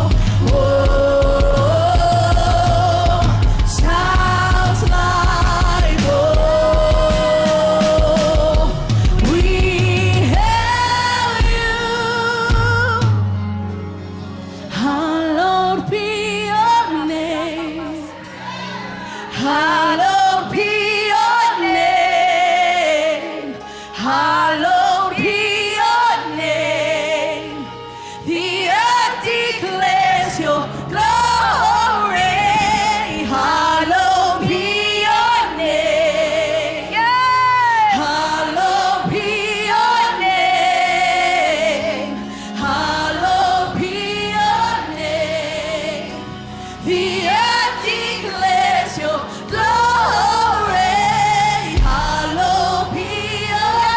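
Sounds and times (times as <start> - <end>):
gospel singers vocalizing: 0.0 - 13.2, 14.2 - 53.9
band playing: 0.0 - 15.0, 36.8 - 53.9.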